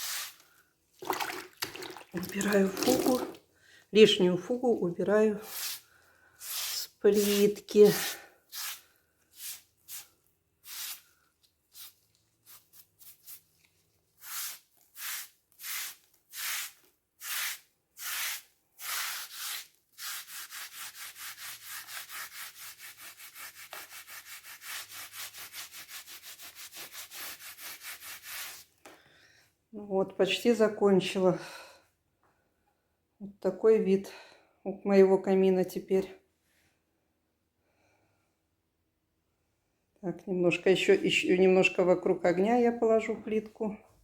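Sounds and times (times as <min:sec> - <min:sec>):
grout rubbed off tiles: 0:00.0 - 0:00.4, 0:05.4 - 0:05.8, 0:06.4 - 0:11.1, 0:11.7 - 0:13.6, 0:14.2 - 0:28.7.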